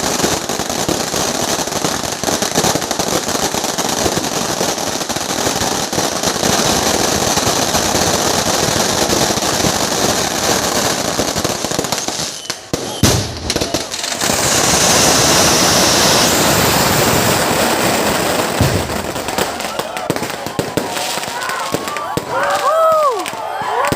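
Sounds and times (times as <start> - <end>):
fireworks crackling: 0.0 - 23.9
loud firework bang: 12.8 - 22.4.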